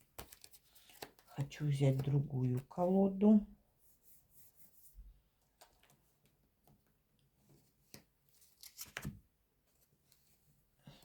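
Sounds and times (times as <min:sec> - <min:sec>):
cards rustling and clicking: 0:00.0 - 0:02.7, 0:05.4 - 0:06.8, 0:07.8 - 0:09.2.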